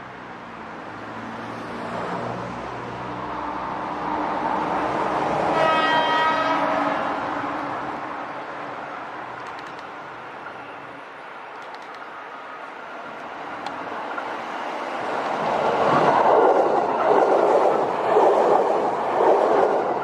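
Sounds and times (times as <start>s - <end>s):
electric train passing: 1.1s - 20.0s
train horn: 5.5s - 7.6s.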